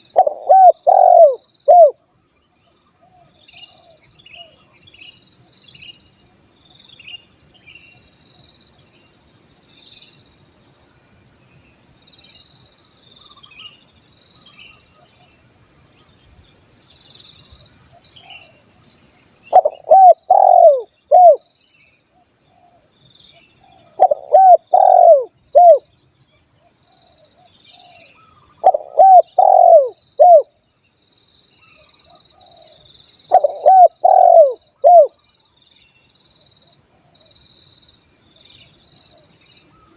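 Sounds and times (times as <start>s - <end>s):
dove cooing: 0.0s - 2.0s, 19.5s - 21.4s, 23.8s - 25.8s, 28.6s - 30.5s, 32.3s - 35.2s
faint bird chirps: 0.0s - 10.2s, 12.0s - 37.7s, 38.4s - 39.9s
insect buzz: 0.0s - 39.9s.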